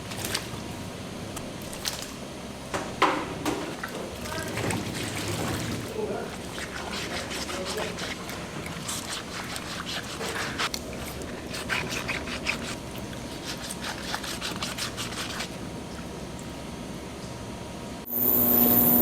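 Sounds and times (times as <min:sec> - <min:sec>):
machinery humming: 0:16.8 - 0:19.0.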